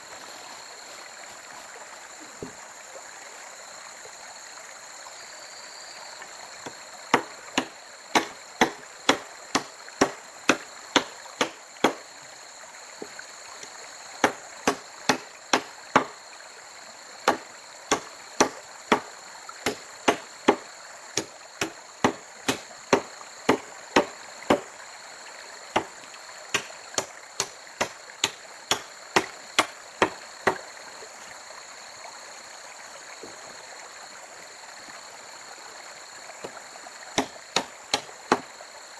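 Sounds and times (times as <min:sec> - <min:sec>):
running water: 0:00.0 - 0:38.9
blade chopping wood: 0:06.6 - 0:12.0, 0:14.2 - 0:16.2, 0:17.2 - 0:24.7, 0:25.8 - 0:30.6, 0:37.2 - 0:38.5.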